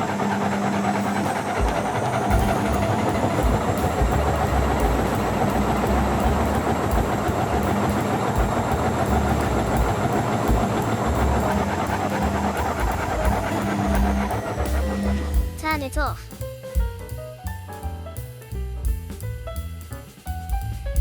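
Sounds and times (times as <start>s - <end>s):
washing machine running: 0.0s - 15.7s.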